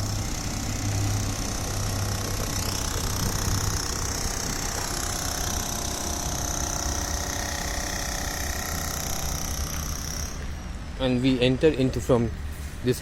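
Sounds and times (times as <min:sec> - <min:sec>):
high-pitched whine: 0:00.0 - 0:11.4
vehicle engine and traffic: 0:08.8 - 0:13.0.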